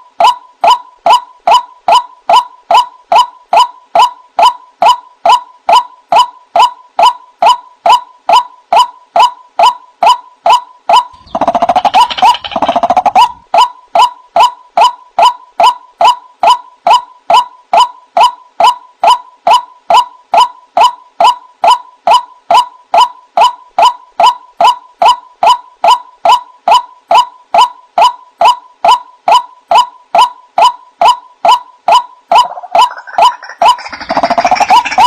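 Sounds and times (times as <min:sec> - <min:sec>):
waterhen calls: 0:11.1 - 0:13.4, 0:32.4 - 0:35.0.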